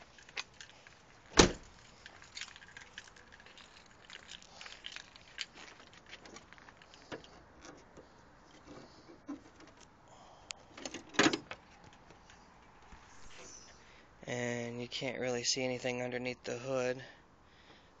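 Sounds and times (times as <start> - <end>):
light clicks and rattles: 0.0 - 9.9
sharp clunk of car body panels: 1.3 - 1.7.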